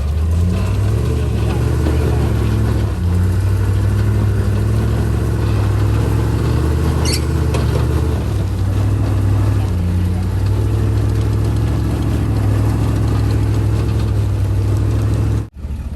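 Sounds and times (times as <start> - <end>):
truck engine running at low revs: 0.0 - 15.9
high squeak: 5.3 - 8.2.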